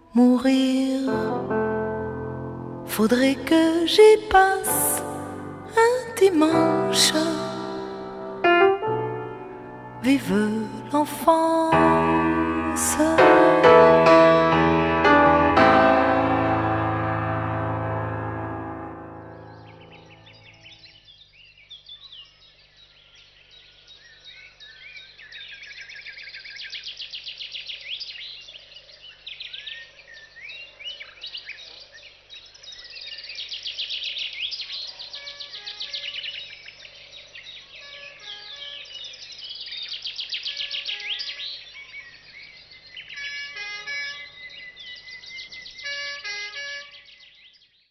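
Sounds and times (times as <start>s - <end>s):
short musical notes: 4.7s - 10.4s, 11.7s - 20.3s
songbirds chirping and trilling: 18.5s - 47.9s.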